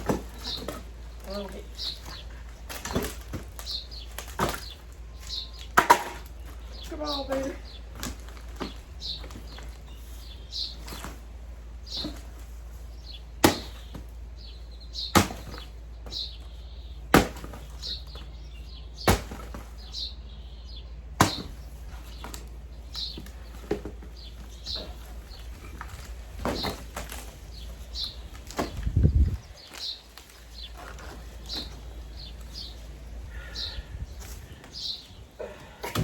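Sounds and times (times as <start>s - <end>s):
chopping tool striking wood: 13.4s - 13.9s, 15.1s - 15.6s, 21.2s - 21.6s.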